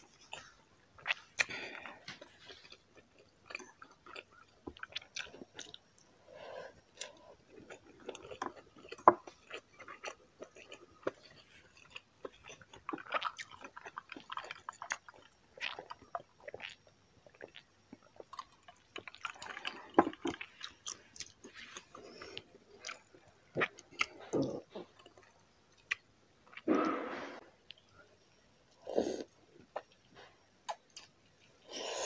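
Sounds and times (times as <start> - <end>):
chewing and wet mouth sounds: 0.1 - 6.1, 6.7 - 26.6, 29.2 - 31.6.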